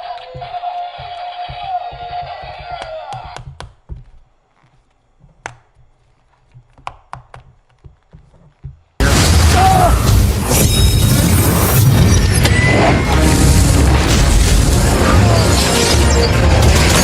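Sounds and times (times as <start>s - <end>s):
loud crash with smashing and booming: 9.0s - 17.0s.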